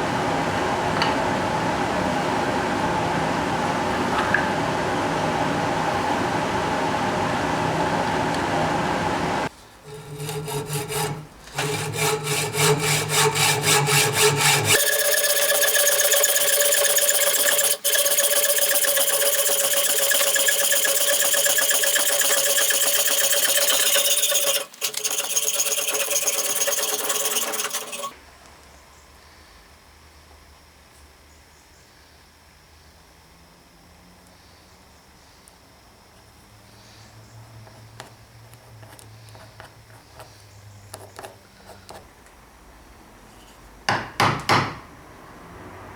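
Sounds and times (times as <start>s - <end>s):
woodworking machine running: 9.8s - 28.1s
rhythmic tool strokes: 9.8s - 28.2s
high-pitched machine run: 14.7s - 28.1s.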